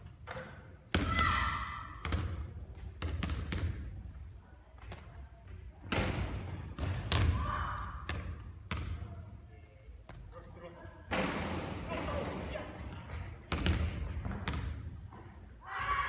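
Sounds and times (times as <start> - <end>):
basketball bouncing: 0.2 - 3.9, 5.9 - 9.2, 12.9 - 16.0.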